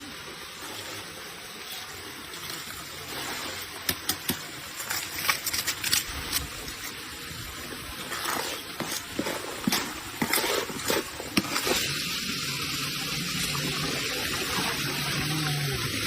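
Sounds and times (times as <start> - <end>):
water sloshing with gravel: 0.6 - 12.2.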